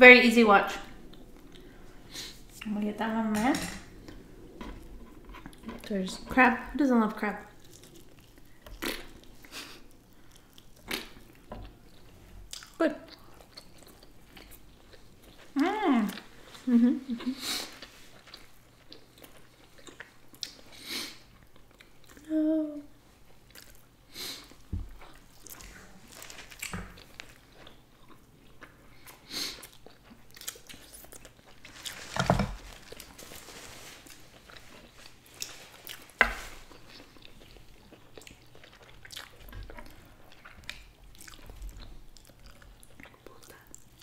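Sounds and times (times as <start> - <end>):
person humming: 22.2 - 22.9.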